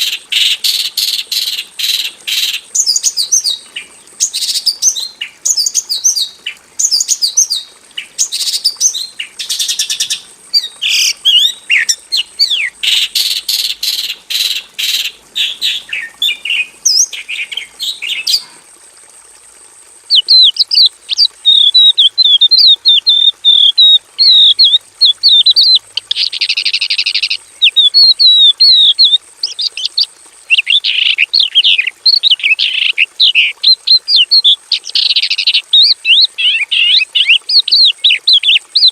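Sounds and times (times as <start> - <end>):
bird singing chirps and trills: 2.8 - 13.7, 20.1 - 38.9.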